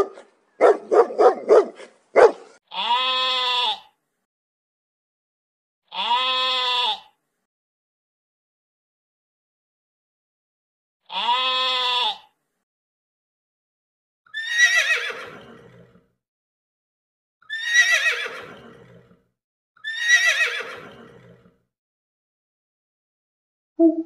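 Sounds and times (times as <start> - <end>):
sheep bleating: 2.7 - 3.9, 5.9 - 7.1, 11.1 - 12.3
horse whinnying: 14.3 - 16.0, 17.5 - 19.2, 19.8 - 21.5.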